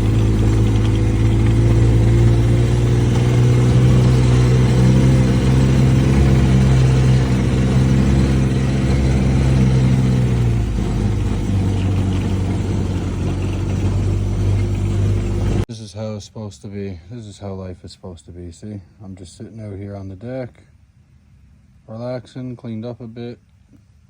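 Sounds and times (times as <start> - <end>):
vehicle engine running: 0.0 - 15.7.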